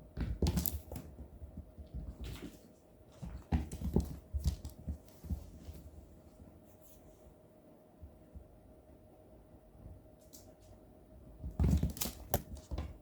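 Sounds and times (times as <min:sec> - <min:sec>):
cats thumping and scuffling: 0:00.0 - 0:06.6, 0:11.3 - 0:13.0.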